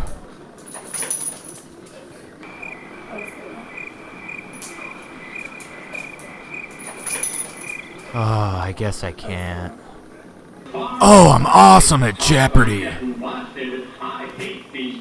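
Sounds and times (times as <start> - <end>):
cricket-like chirping: 2.5 - 8.0.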